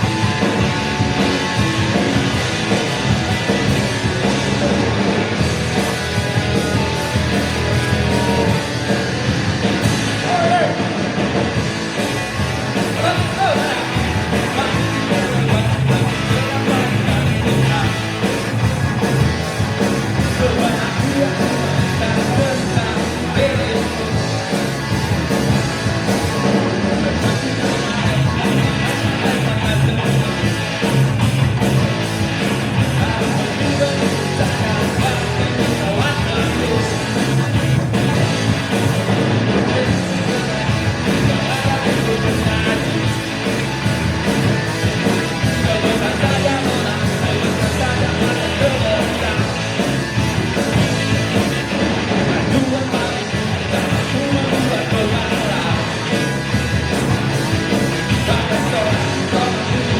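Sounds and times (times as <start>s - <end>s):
live band playing: 0.0s - 59.9s
person singing: 6.6s - 9.2s, 12.9s - 18.4s, 20.2s - 24.7s, 32.5s - 37.4s, 39.6s - 43.2s, 45.3s - 49.8s, 52.4s - 56.3s, 58.1s - 59.9s.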